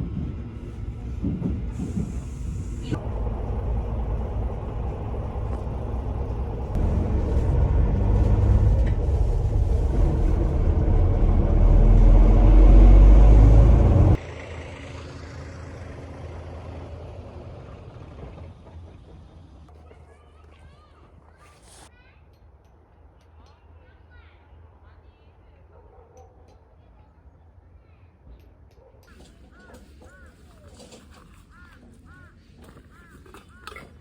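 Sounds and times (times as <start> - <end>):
vehicle rumbling: 0.0 - 21.9.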